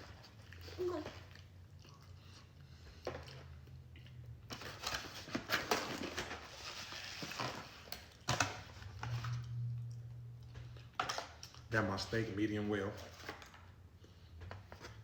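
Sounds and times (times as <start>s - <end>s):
chewing: 0.0s - 4.4s
low steady hum: 0.0s - 15.0s.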